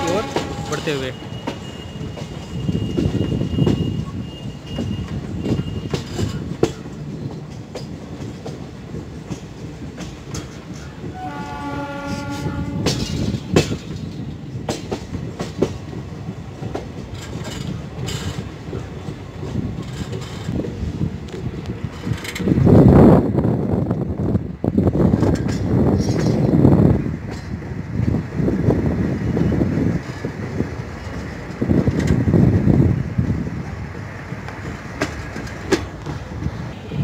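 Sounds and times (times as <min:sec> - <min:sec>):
locomotive horn: 0:00.0 - 0:02.3, 0:11.1 - 0:13.2
high wheel squeal: 0:00.0 - 0:06.5
wheels clicking over rail joints: 0:00.0 - 0:23.0, 0:24.8 - 0:28.4, 0:29.3 - 0:36.7
train rumble: 0:00.0 - 0:37.0.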